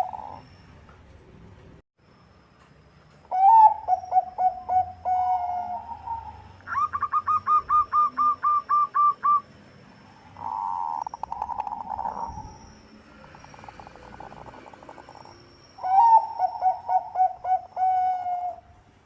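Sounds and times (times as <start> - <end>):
dove cooing: 0.0 - 0.4, 3.3 - 9.4, 10.4 - 12.5, 13.2 - 18.8
buzzy pulsed bird call: 0.0 - 0.6, 3.3 - 18.7.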